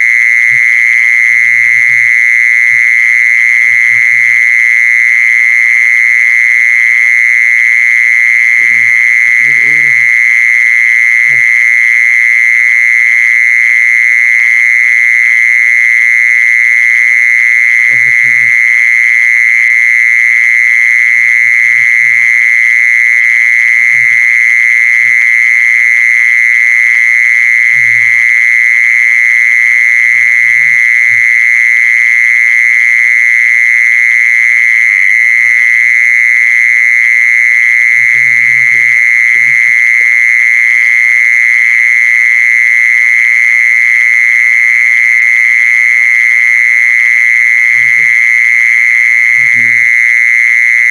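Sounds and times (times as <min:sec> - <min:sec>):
insect buzzing: 0:00.0 - 0:04.9, 0:08.3 - 0:11.7, 0:17.9 - 0:18.7, 0:37.4 - 0:40.3, 0:47.7 - 0:48.4.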